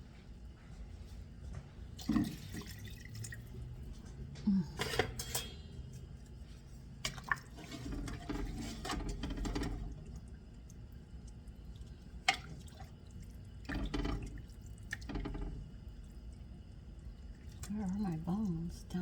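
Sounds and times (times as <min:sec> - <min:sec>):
utensil clattering against pot: 0:04.7 - 0:05.9, 0:13.7 - 0:14.4.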